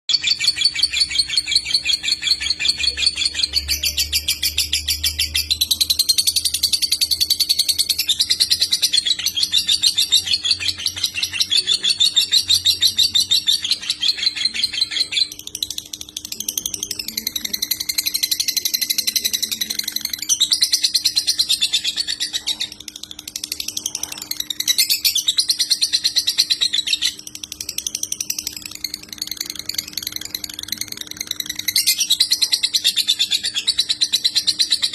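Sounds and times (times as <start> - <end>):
lovebird chattering trills: 0.1 - 34.9
faint steady hum: 0.2 - 34.9.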